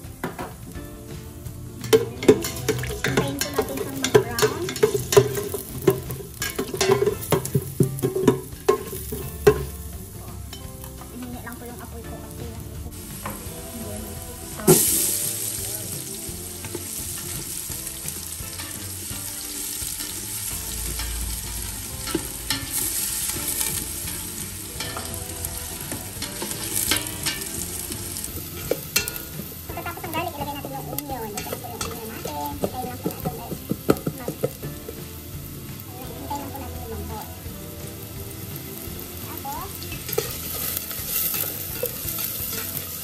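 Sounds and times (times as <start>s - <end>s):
garlic and onion sizzling in oil: 0.0s - 43.0s
spatula scraping a metal pot: 1.8s - 9.7s, 13.0s - 34.6s, 39.6s - 43.0s.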